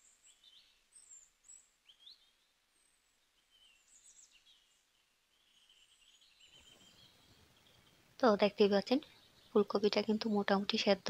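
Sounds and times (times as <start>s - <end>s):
faint high bird chirps: 0.0s - 11.0s.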